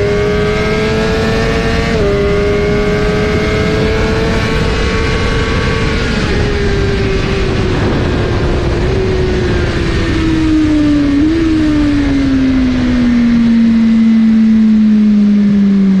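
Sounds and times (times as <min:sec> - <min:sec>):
loud rushing noise: 0:05.2 - 0:11.1.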